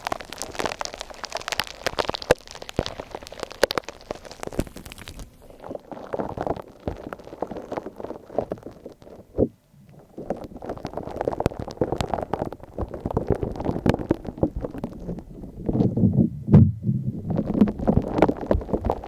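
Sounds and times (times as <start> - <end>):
slime crackling and crunching: 0.0 - 19.0
slime squelching and popping: 0.0 - 19.0.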